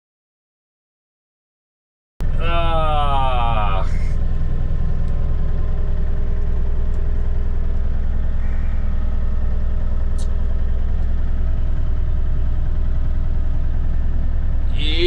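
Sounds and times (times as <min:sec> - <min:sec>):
engine running steadily: 0:02.2 - 0:15.0
faint short click: 0:10.2 - 0:10.4.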